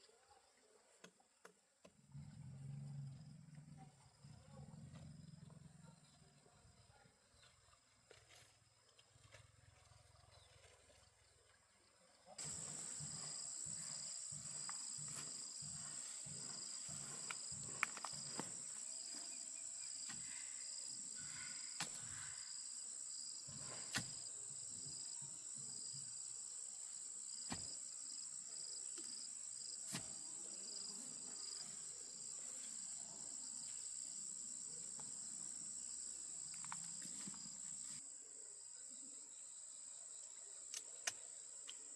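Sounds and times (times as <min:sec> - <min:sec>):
insects droning: 0:12.3 - 0:41.9.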